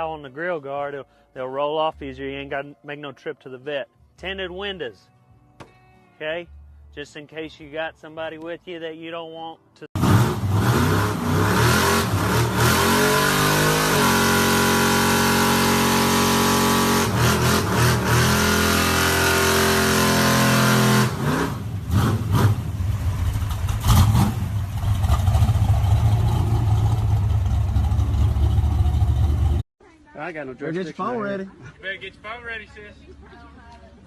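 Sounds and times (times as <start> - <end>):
truck engine revving: 10.0 - 29.6.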